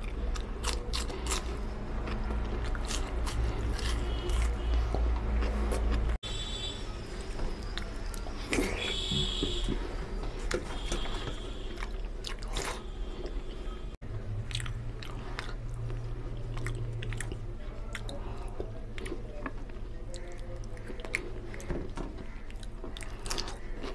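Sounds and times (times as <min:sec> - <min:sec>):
chewing with wet mouth clicks: 0:00.0 - 0:06.2, 0:14.4 - 0:23.9.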